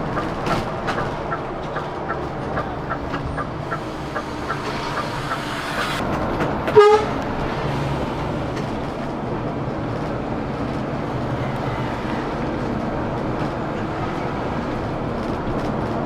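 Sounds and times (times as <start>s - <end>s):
even ticking: 0.0s - 6.6s
coach road and engine noise: 0.0s - 16.0s.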